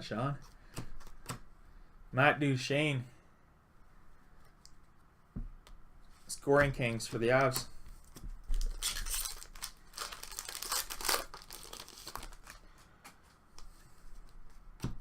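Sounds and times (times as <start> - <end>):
wrapper tearing and crinkling: 8.5 - 12.6.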